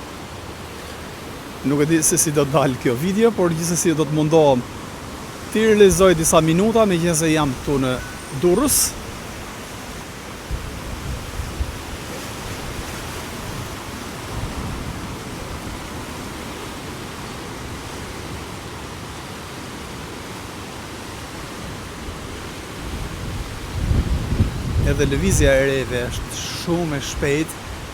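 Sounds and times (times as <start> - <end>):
strong wind on microphone: 7.4 - 16.4, 21.8 - 26.4.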